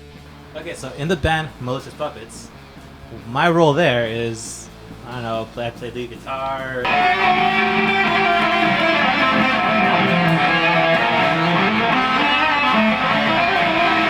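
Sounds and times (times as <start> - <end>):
electric guitar melody: 6.8 - 14.0.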